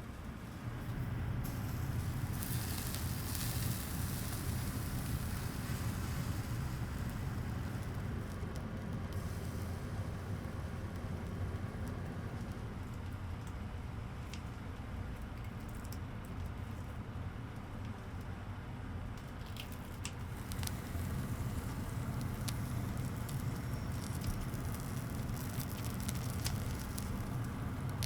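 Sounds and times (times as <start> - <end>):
steady low hum: 0.0 - 15.4, 16.0 - 28.0
charcoal crackling and hissing: 0.0 - 17.0, 19.2 - 28.0
sharp pops of burning charcoal: 0.8 - 13.6, 19.6 - 28.0.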